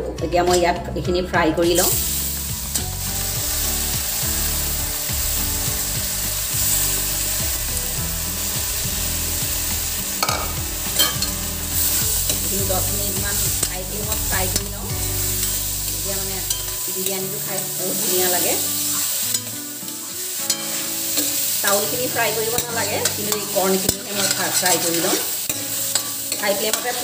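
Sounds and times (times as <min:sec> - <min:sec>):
grits sizzling in hot oil: 0:01.8 - 0:27.0
ladle scraping and clinking on pot: 0:10.2 - 0:11.4, 0:22.6 - 0:27.0.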